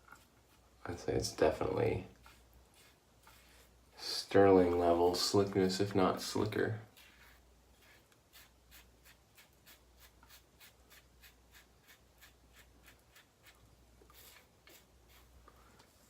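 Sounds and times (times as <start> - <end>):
razor scraping stubble: 4.4 - 15.4.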